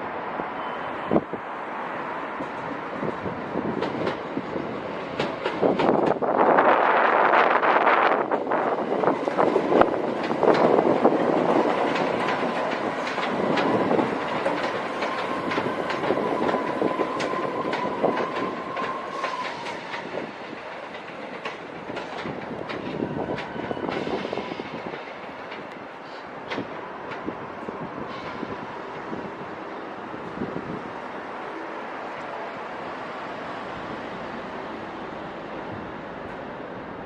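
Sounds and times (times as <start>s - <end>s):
train wheels clicking over rail joints: 3.7s - 6.6s, 8.3s - 27.3s.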